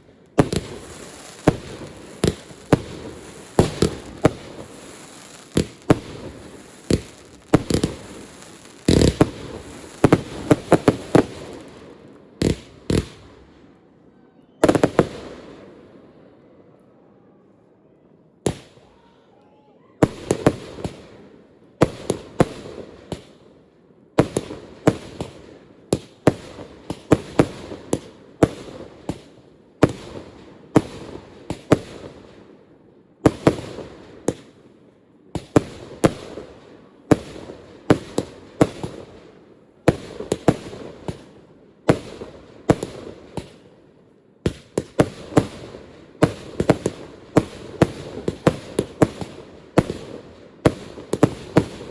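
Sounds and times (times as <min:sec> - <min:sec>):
fireworks bangs with echo: 0:00.3 - 0:13.6, 0:35.3 - 0:43.7, 0:44.4 - 0:51.9.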